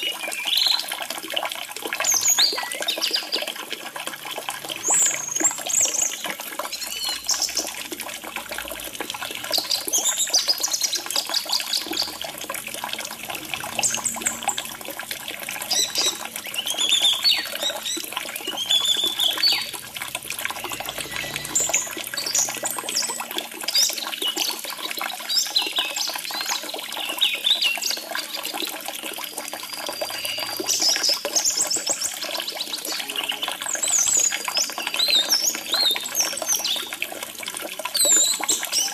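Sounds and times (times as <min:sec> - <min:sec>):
trickling water: 0:00.0 - 0:38.9.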